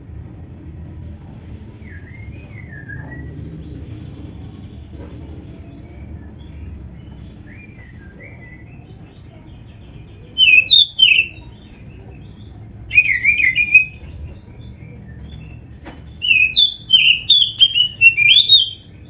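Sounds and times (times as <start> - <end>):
bird singing whistled notes: 10.3 - 19.0.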